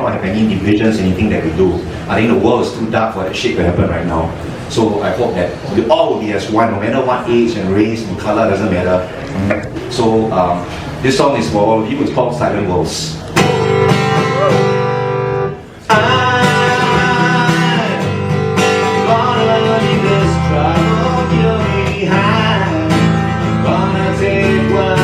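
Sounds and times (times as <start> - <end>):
guitar chords strummed: 13.3 - 25.0.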